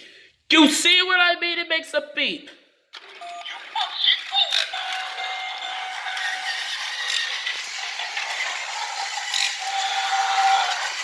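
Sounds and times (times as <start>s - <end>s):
toy train rattling on track: 3.0s - 11.0s.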